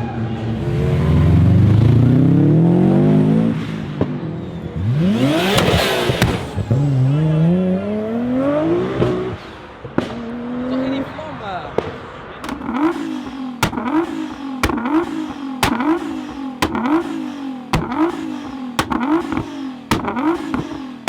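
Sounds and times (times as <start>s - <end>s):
car engine revving: 0.4s - 11.2s, 12.4s - 21.0s
exhaust cracks: 4.8s - 7.0s, 12.4s - 21.0s.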